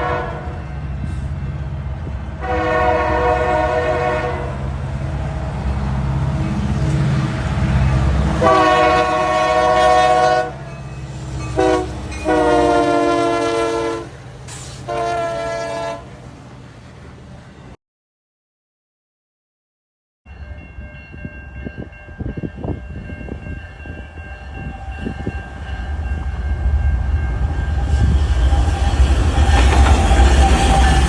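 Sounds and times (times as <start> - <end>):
locomotive horn blasts: 0.0 - 0.8, 2.4 - 4.7, 8.3 - 10.7, 11.5 - 14.2, 14.8 - 16.2
low rumble of moving train: 0.0 - 17.8, 20.3 - 31.0.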